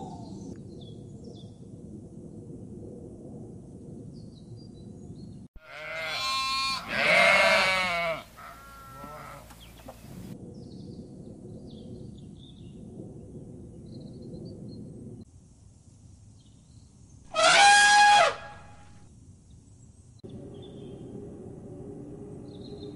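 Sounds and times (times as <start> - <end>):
outdoor background noise: 0.0 - 22.9
sheep bleating: 5.6 - 9.6.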